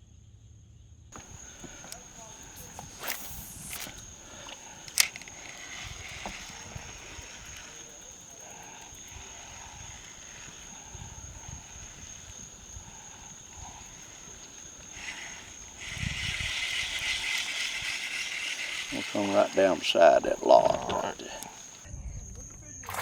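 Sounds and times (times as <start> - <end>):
sharp click: 1.2 - 7.8
wind rumble on microphone: 1.2 - 19.1
high thin whine: 1.2 - 21.8.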